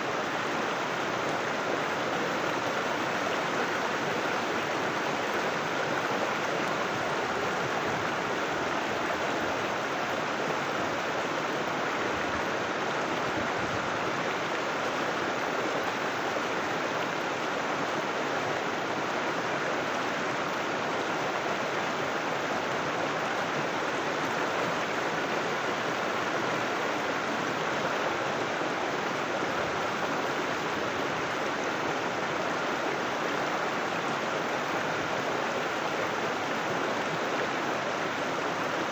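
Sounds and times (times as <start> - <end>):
river water rushing over rocks: 0.0 - 38.9.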